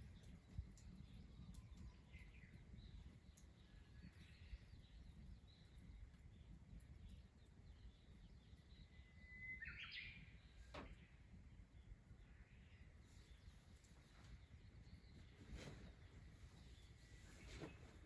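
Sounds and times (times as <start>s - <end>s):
distant bird calls: 7.8s - 18.0s
bird whistle and trill: 9.2s - 10.3s.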